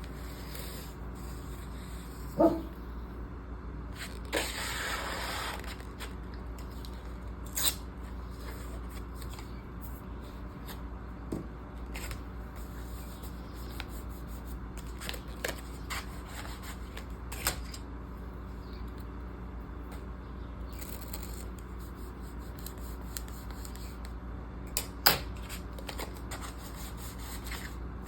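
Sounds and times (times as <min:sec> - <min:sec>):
paper rustling and sliding: 0:00.0 - 0:02.2, 0:04.0 - 0:07.2.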